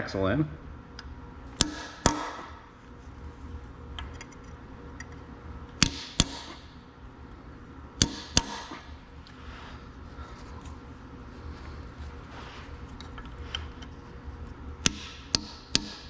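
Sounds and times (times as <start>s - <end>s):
hammer striking metal: 1.6s - 2.6s, 5.8s - 6.7s, 8.0s - 8.9s, 14.8s - 16.0s.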